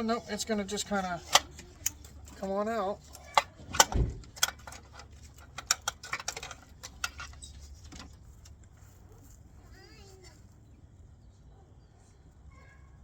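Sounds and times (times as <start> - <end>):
sharp clicks and knocks: 0.4 - 8.7.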